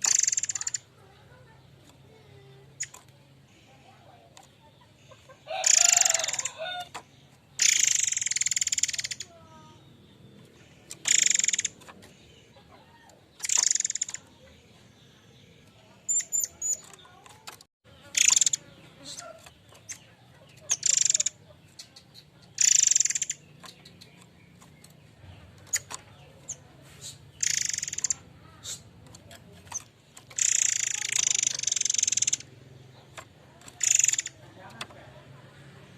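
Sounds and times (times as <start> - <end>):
thin high chirps: 0.0 - 3.9, 4.8 - 6.7, 7.5 - 12.6, 13.3 - 15.1, 16.0 - 34.7
bird harsh hissing calls: 18.1 - 19.3, 26.9 - 28.9, 30.4 - 32.4.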